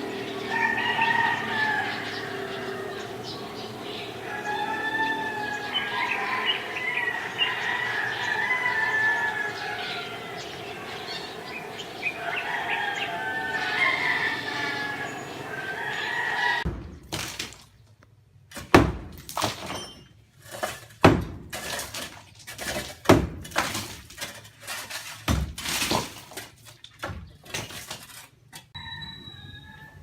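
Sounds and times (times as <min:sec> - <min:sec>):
birds calling: 0:00.0 - 0:16.7
demolition knocks and crashes: 0:20.5 - 0:28.3.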